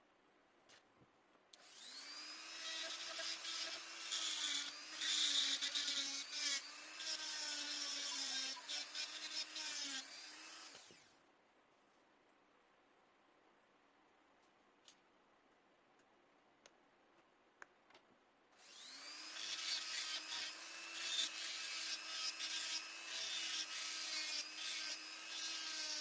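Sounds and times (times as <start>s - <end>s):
die grinder grinding: 18.6s - 26.0s.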